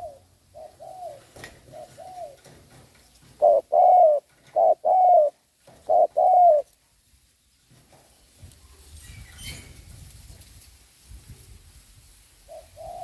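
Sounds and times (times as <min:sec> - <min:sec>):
dove cooing: 0:00.0 - 0:06.7, 0:12.5 - 0:13.0.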